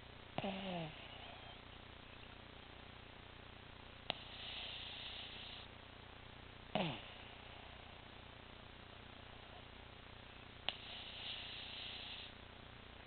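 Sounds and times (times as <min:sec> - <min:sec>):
dog hissing breath: 0:04.1 - 0:05.7, 0:10.7 - 0:12.4
dog snore falling in pitch: 0:06.8 - 0:07.1.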